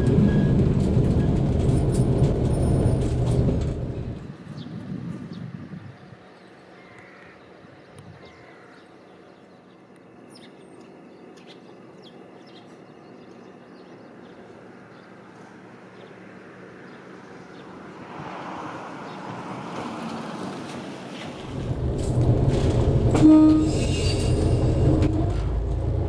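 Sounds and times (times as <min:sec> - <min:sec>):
birds chirping: 0:04.4 - 0:18.0
vehicle passing: 0:14.7 - 0:23.1.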